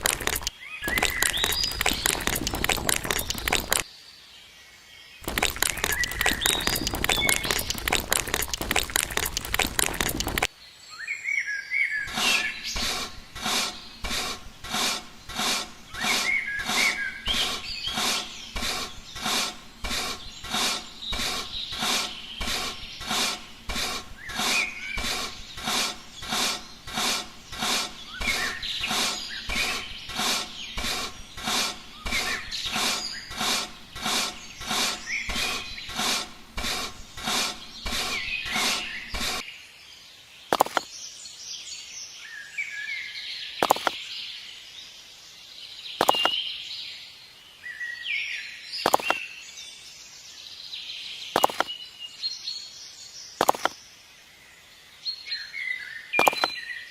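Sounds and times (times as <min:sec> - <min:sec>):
birds chirping: 0:00.0 - 0:03.8, 0:05.2 - 0:10.6, 0:11.9 - 0:40.9, 0:45.4 - 0:46.7, 0:47.5 - 0:49.7, 0:50.9 - 0:52.2, 0:55.3 - 0:56.9
rhythmic scraping strokes: 0:00.0 - 0:03.8, 0:05.2 - 0:10.5, 0:12.1 - 0:39.4.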